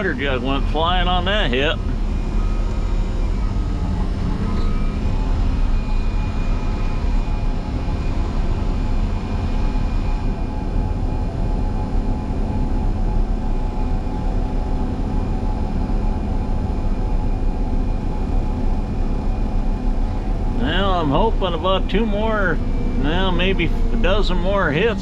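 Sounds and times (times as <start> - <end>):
diesel engine drone: 0.0 - 25.0
faint high whine: 0.0 - 25.0.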